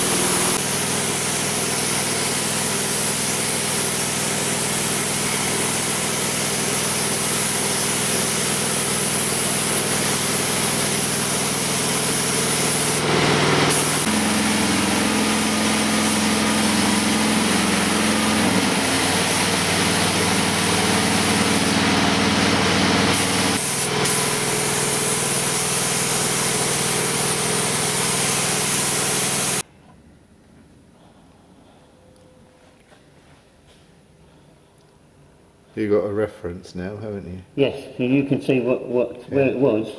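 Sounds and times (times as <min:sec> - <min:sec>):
paint spray gun hissing: 0:00.0 - 0:29.6
motor humming: 0:11.9 - 0:24.1.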